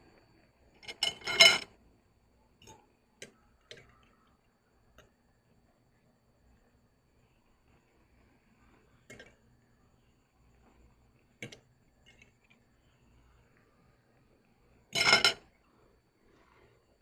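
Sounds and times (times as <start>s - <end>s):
utensils clinking on a dish: 0.8s - 1.7s, 14.9s - 15.5s.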